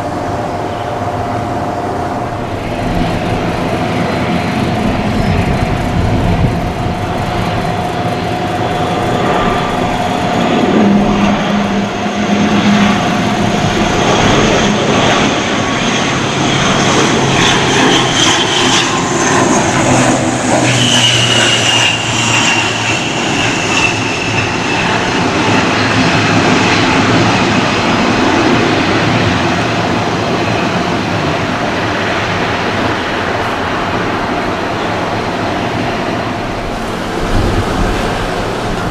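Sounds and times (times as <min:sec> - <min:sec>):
high whine falling in pitch: 0:00.0 - 0:27.2
turboprop aircraft roar: 0:00.0 - 0:38.9.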